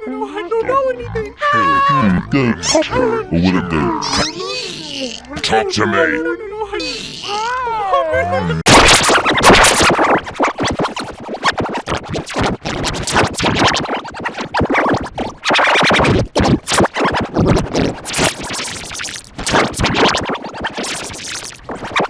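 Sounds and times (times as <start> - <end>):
distorted stuttering audio edits: 1.0 - 4.6, 8.5 - 22.0.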